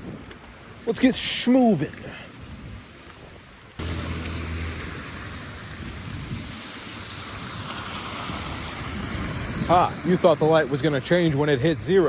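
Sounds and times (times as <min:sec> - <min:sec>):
wind buffeting microphone: 0:00.0 - 0:12.0
vehicle engine hum: 0:03.8 - 0:11.0
city traffic hiss: 0:03.8 - 0:11.6.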